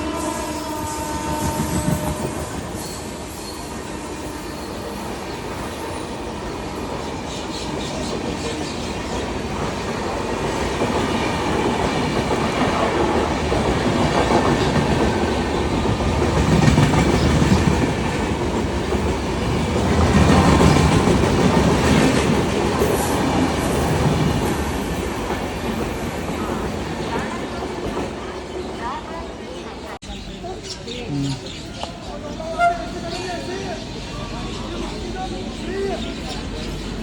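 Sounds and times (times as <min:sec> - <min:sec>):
train wheels clattering on rails: 0:05.4 - 0:28.3.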